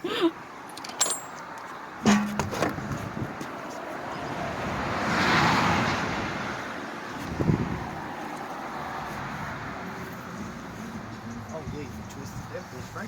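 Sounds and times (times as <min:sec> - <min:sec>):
short knock: 0:02.1 - 0:02.8
vehicle passing by: 0:04.0 - 0:13.0.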